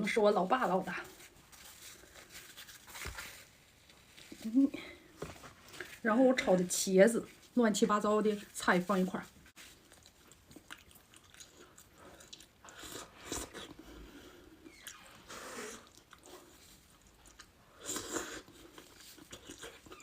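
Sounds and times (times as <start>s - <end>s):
person chewing food: 9.6s - 20.0s.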